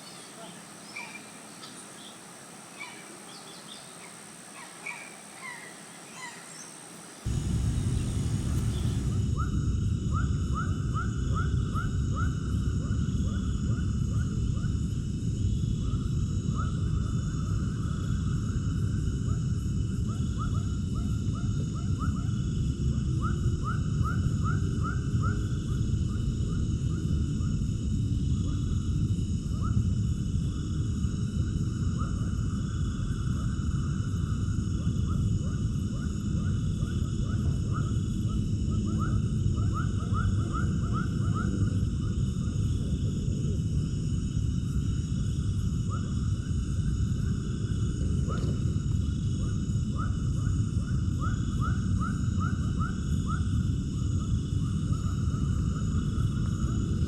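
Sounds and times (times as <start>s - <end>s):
birds chirping: 0.0s - 9.2s
rapid repeated chirping calls: 0.0s - 9.2s
low rumble: 7.3s - 13.8s.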